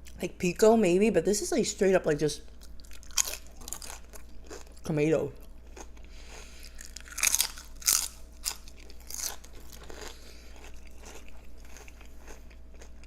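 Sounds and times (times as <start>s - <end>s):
person chewing: 2.5s - 13.0s
crunchy bites: 2.8s - 4.9s, 5.7s - 13.0s.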